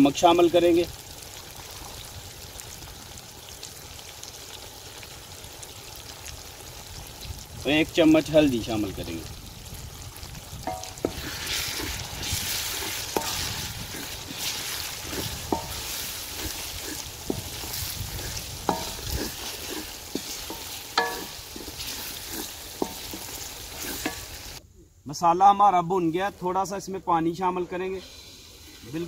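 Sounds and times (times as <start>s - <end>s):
food sizzling in oil: 0.0s - 24.6s, 27.4s - 29.0s
spatula knocking against pot: 20.5s - 21.4s.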